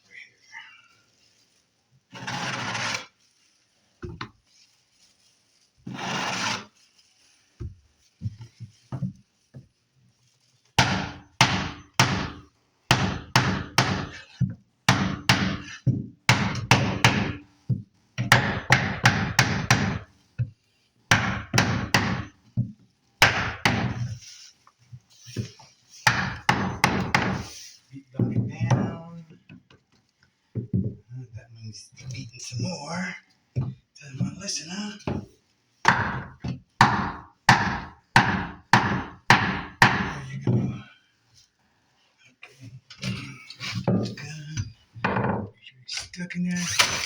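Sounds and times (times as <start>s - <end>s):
short scrapes: 2.1s - 3.2s, 5.8s - 6.8s
hammer knocking on beating block: 10.8s - 14.1s, 14.9s - 15.6s, 16.3s - 17.4s, 18.2s - 20.0s, 21.1s - 22.3s, 23.2s - 24.0s, 26.1s - 27.4s, 35.9s - 40.6s.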